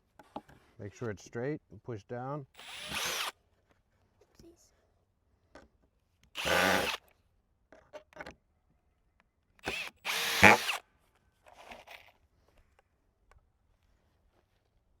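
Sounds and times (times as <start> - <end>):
power drill driving screws: 2.6 - 3.3, 6.4 - 7.0, 9.6 - 10.8.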